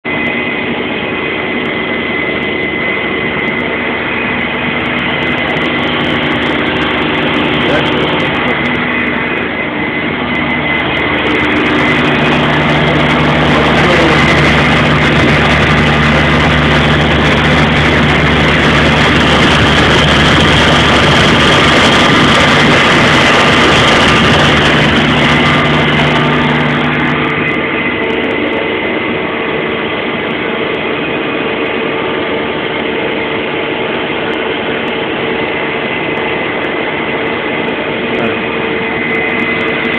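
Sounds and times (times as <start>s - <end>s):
lathe machine hum: 0.1s - 39.9s
hissy metal cutting noise: 3.2s - 31.1s.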